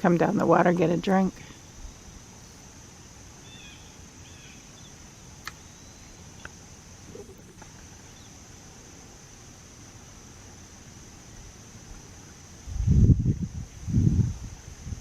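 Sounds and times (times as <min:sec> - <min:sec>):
high insect drone: 0:00.0 - 0:15.0
bird chirps: 0:03.4 - 0:06.2.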